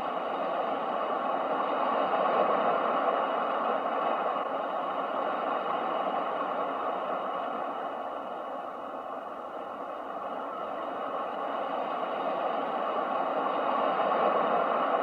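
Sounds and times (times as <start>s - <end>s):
ocean waves washing: 0.1s - 15.0s.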